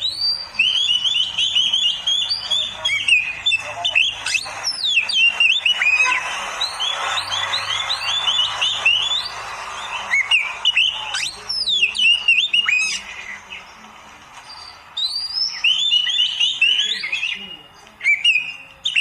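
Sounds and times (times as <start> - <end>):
bird rasping chatter: 0.0 - 13.8
songbird whistling: 0.0 - 13.8, 14.4 - 19.0.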